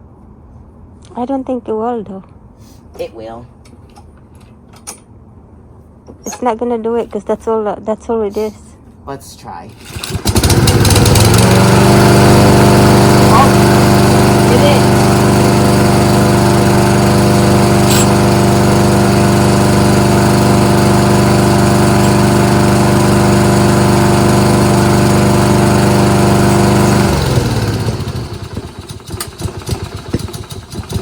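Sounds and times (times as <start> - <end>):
lawnmower engine running: 9.8 - 31.0
knocks and rattles: 28.9 - 31.0.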